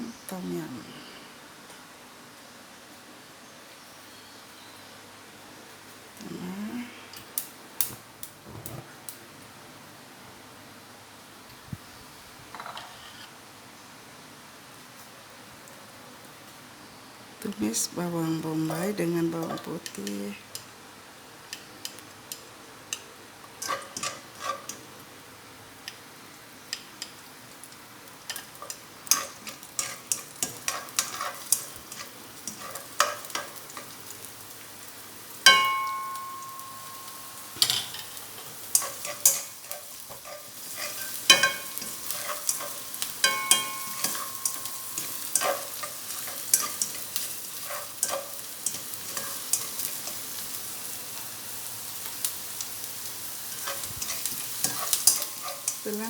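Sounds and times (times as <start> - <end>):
spatula scraping a pan: 12.6 - 13.4, 23.6 - 24.9, 28.3 - 34.0, 37.5 - 50.5, 53.4 - 56.0
onion sizzling in hot oil: 17.4 - 56.0
ringing metallic clangs: 35.5 - 38.2, 41.0 - 45.6.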